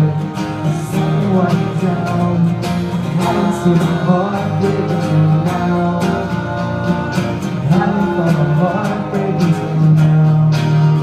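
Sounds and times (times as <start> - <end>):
strummed guitar chords: 0.0 - 11.0.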